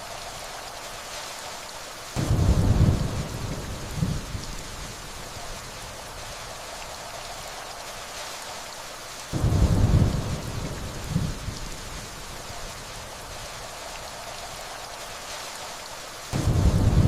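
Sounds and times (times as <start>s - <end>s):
steady rainfall: 0.0s - 17.0s
distant thunder rumble: 2.2s - 5.0s, 9.4s - 12.2s, 16.3s - 17.0s.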